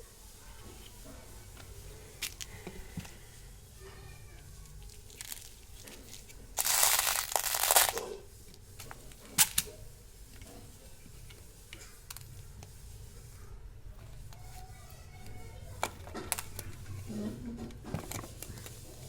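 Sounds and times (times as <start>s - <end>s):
candy packet crinkling: 4.8s - 8.2s.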